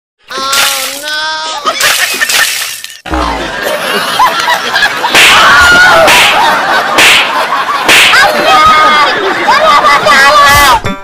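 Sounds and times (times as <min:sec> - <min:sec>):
people laughing: 0:01.4 - 0:10.6
excited voices: 0:03.1 - 0:10.8
whip-like swishes: 0:06.0 - 0:06.4, 0:07.0 - 0:07.4.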